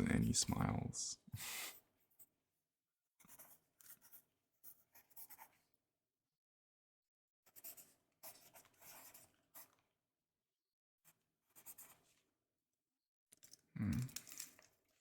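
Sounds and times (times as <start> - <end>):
pen writing on paper: 3.2 - 5.6, 7.5 - 9.8, 11.1 - 12.1.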